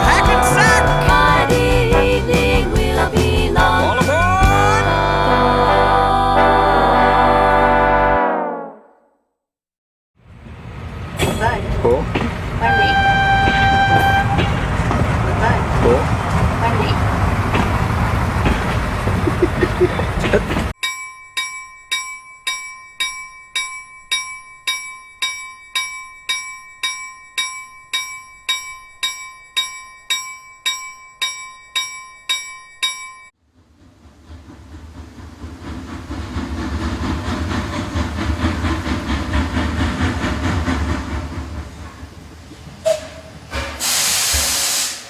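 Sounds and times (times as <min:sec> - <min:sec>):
train rumbling: 0:00.0 - 0:07.6, 0:10.2 - 0:20.8, 0:33.4 - 0:45.0
train bell ringing: 0:20.8 - 0:33.4.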